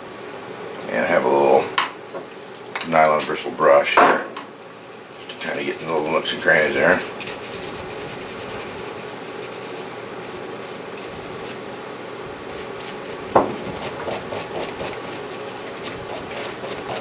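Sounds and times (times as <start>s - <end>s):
brush scrubbing metal: 4.7s - 11.6s, 12.5s - 17.0s.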